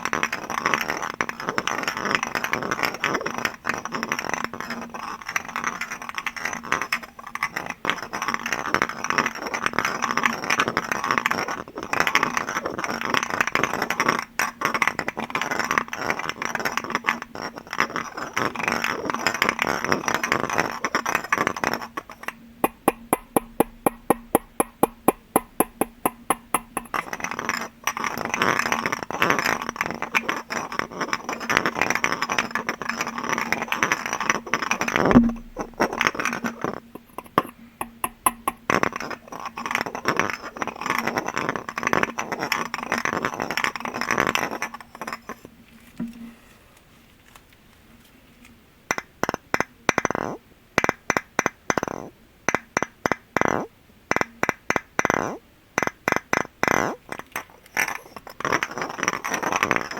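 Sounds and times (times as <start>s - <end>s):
tapping on glass objects: 18.2s - 45.3s.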